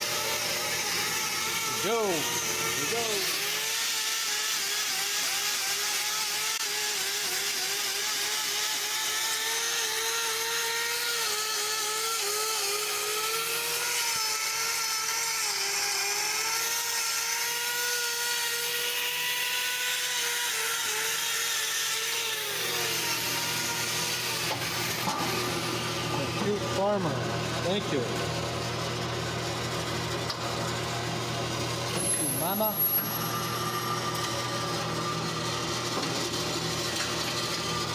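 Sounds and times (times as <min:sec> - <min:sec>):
power grinder cutting hoof: 0:00.0 - 0:37.9.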